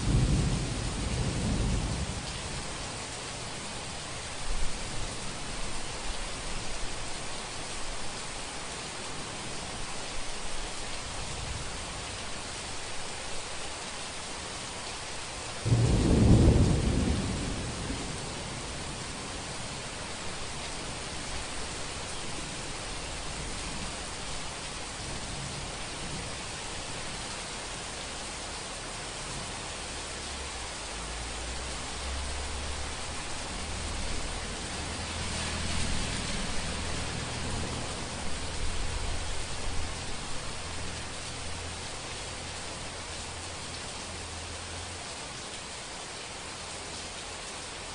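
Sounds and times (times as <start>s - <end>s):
thunder clap and rumble: 0.0s - 3.2s, 15.6s - 21.4s
steady rain falling: 0.0s - 47.9s.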